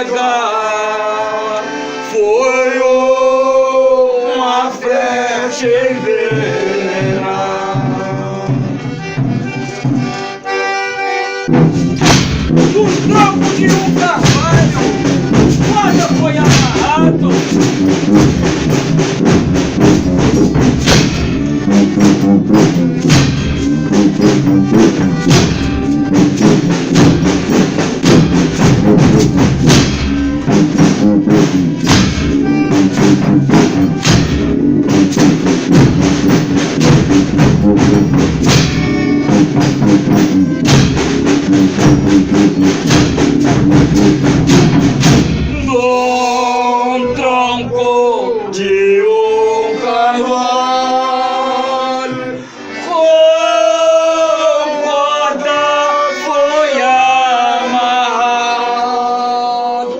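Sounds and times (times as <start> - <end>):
voices singing: 0.0 - 11.2, 12.6 - 17.7, 45.5 - 59.9
band playing instrumental music: 5.5 - 54.2
drum and percussion beat: 6.3 - 10.6, 11.4 - 47.8.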